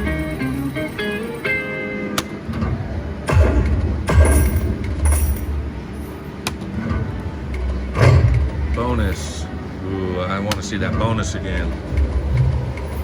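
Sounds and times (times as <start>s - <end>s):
slot machine jingle: 0.0s - 1.8s, 4.1s - 6.3s
slot machine click: 3.3s - 5.6s.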